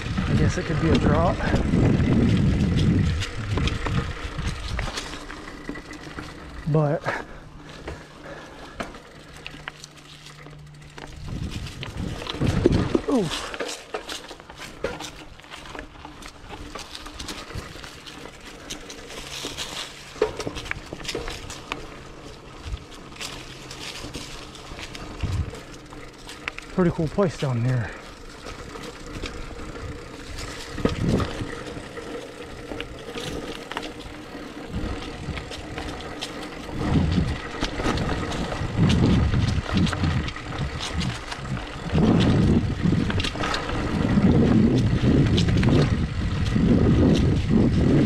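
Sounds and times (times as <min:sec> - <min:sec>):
wind buffeting microphone: 0:00.0 - 0:05.6, 0:10.9 - 0:13.5, 0:24.8 - 0:26.1, 0:26.9 - 0:48.0
bike clicks and rattles: 0:00.0 - 0:48.0
bike tyres on dirt trail: 0:00.0 - 0:48.0.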